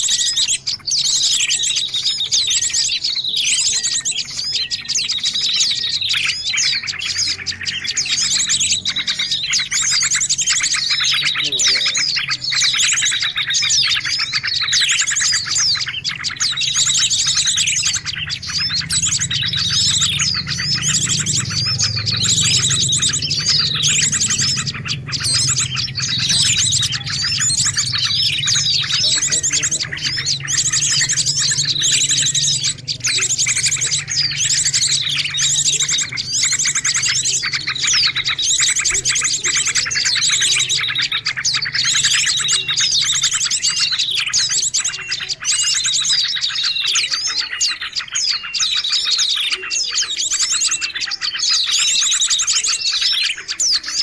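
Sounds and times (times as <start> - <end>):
chorus of small birds chirping: 0.0 - 54.0.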